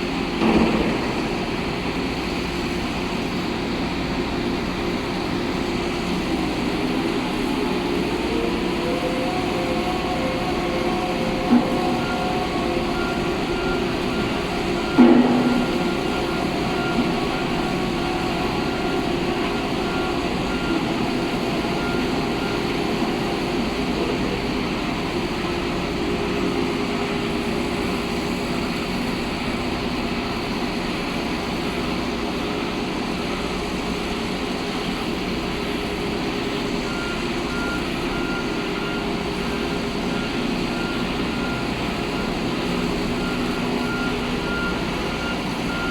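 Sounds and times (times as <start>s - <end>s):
heavy construction machinery running: 0.0s - 45.9s.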